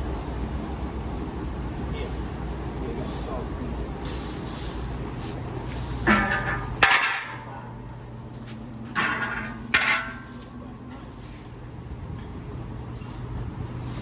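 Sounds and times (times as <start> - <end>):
steady low hum: 0.0 - 14.0
sharp metallic clanks: 5.8 - 7.5, 8.9 - 10.6.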